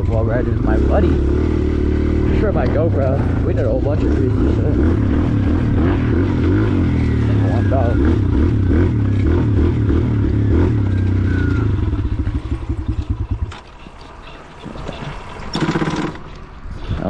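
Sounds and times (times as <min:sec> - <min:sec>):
dirt bike engine running: 0:00.0 - 0:17.0
loud clatter: 0:12.2 - 0:16.6.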